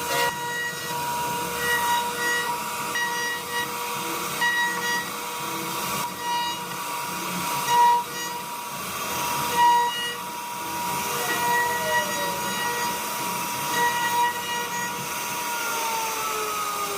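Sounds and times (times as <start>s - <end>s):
router spindle whining: 0.0s - 16.9s.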